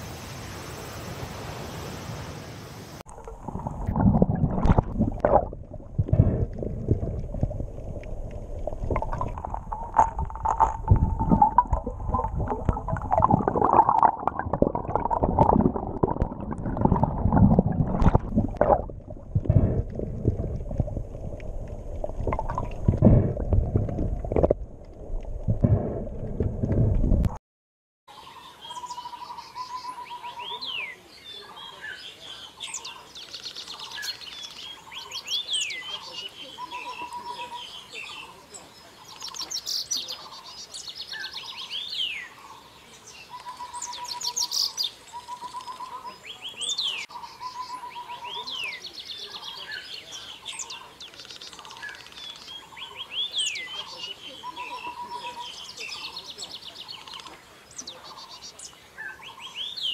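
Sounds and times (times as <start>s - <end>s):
underwater gurgling and rumbling: 3.1s - 27.4s
underwater knocks: 3.2s - 27.4s.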